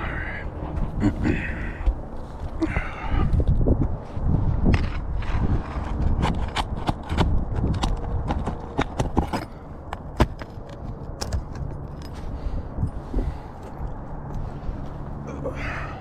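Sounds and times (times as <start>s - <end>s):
sharp clicks and knocks on roof: 5.8s - 11.8s.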